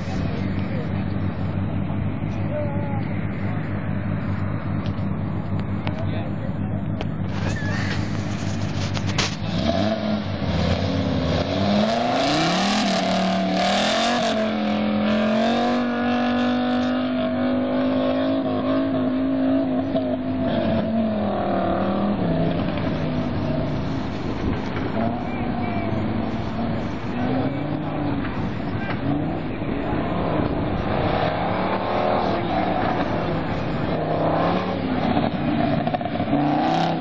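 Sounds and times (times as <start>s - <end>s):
car engine idling and revving: 0.0s - 37.0s.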